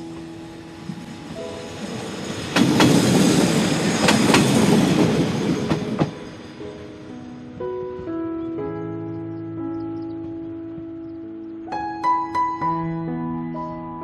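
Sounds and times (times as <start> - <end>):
railcar rushing rumble: 0.0 - 12.8
train wheels clacking over rail joints: 2.0 - 6.4.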